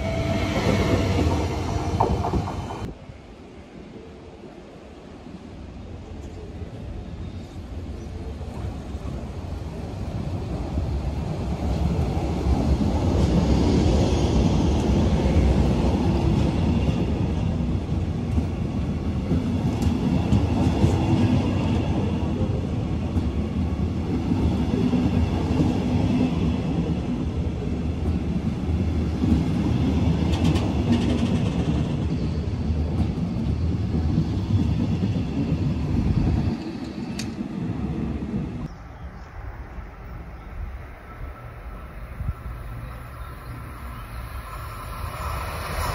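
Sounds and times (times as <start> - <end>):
train clattering: 0.0 - 2.9
train wheels rumbling on rail: 0.0 - 3.0, 7.3 - 38.8.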